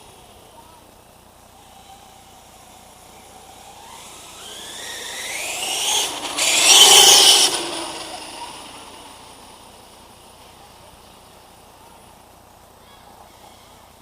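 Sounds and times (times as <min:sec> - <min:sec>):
electric motor whining: 0:01.5 - 0:10.2.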